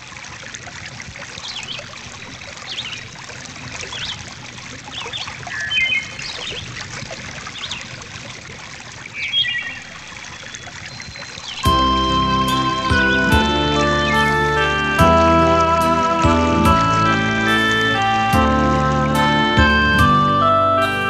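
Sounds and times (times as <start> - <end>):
stream trickling: 0.0 - 21.0
bird trills: 1.4 - 1.9, 2.6 - 3.1, 4.9 - 7.9, 9.1 - 15.2
small birds chirping: 1.4 - 8.0, 9.0 - 15.0.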